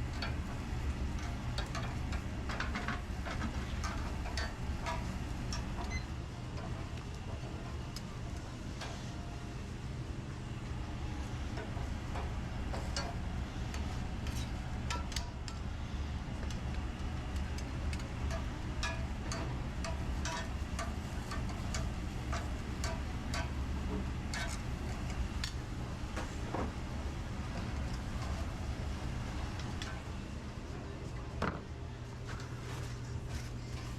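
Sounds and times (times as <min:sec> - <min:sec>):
low kitchen hum: 0:00.0 - 0:33.9
utensils and dishes clattering: 0:18.3 - 0:25.1.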